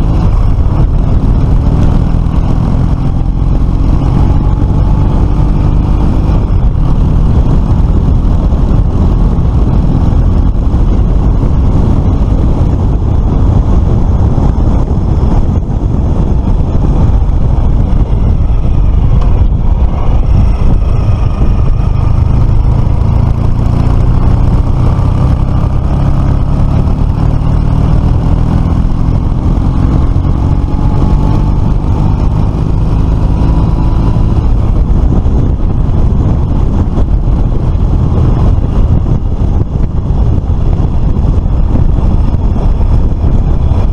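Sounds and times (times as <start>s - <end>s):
scooter engine running: 0.0s - 28.4s
heavy low rumble: 0.0s - 43.9s.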